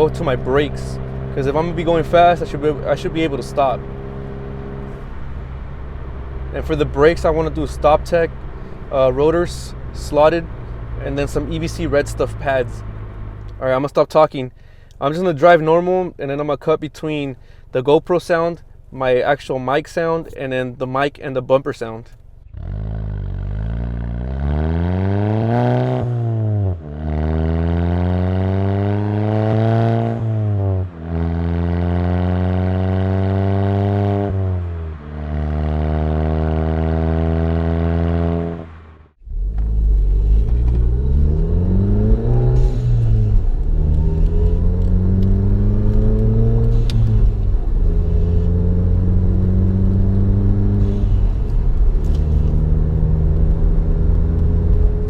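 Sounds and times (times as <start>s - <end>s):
car engine accelerating through gears: 0.0s - 13.6s, 22.5s - 55.0s.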